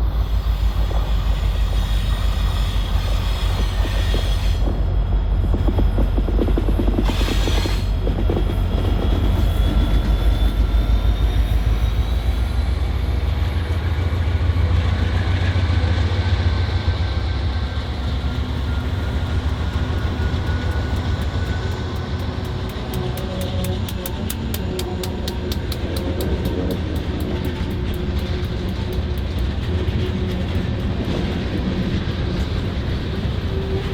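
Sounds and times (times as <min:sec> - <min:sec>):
freight train rumbling by: 0:00.0 - 0:33.9
high metallic wheel squeal: 0:00.3 - 0:04.7, 0:07.0 - 0:12.7.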